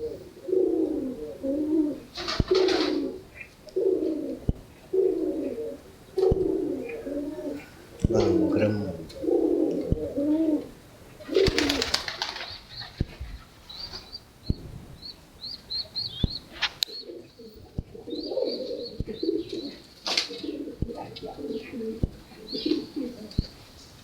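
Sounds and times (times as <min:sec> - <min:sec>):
pigeons cooing: 0:00.0 - 0:14.1, 0:15.8 - 0:23.6
pigeon wings flapping: 0:02.2 - 0:03.0, 0:11.3 - 0:13.2.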